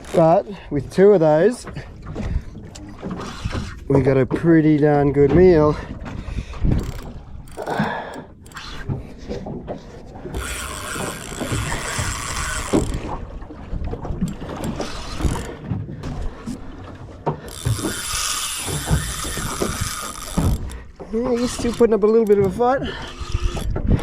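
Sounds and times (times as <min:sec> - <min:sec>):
fishing reel ratchet clicking: 0:06.8 - 0:08.8, 0:10.3 - 0:13.2, 0:14.3 - 0:15.5, 0:17.5 - 0:23.8.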